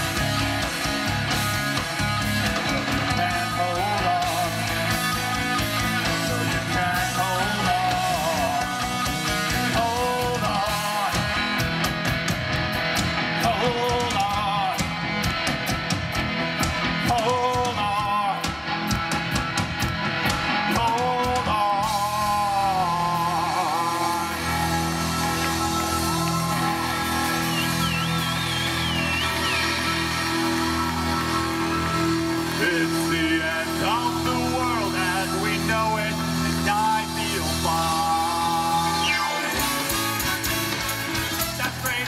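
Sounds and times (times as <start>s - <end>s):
live rock band playing: 0.0s - 42.0s.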